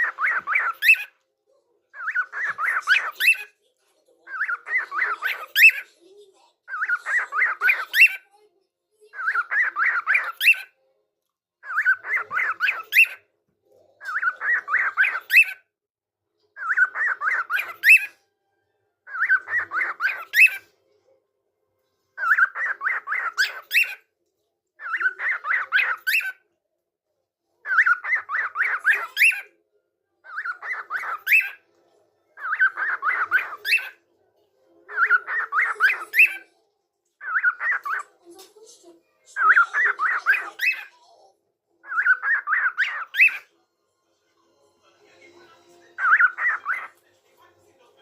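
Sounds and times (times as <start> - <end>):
parrot chattering call: 30.2 - 31.6, 32.4 - 34.0, 34.9 - 36.5, 39.4 - 40.9, 41.8 - 43.5.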